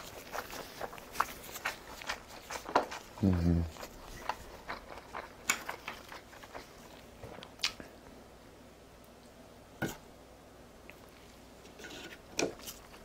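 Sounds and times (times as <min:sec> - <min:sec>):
person chewing food: 0:00.0 - 0:08.1, 0:12.2 - 0:13.0.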